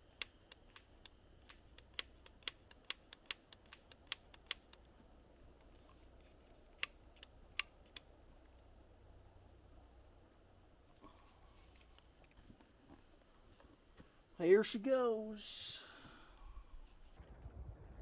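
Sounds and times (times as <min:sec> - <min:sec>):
short sharp clicks: 0:00.0 - 0:04.9.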